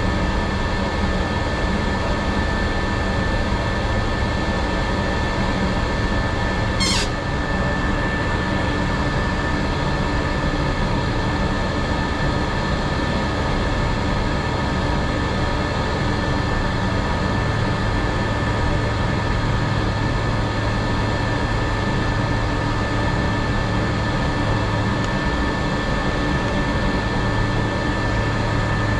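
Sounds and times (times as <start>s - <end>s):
brief sweeping whistle: 6.8s - 7.2s.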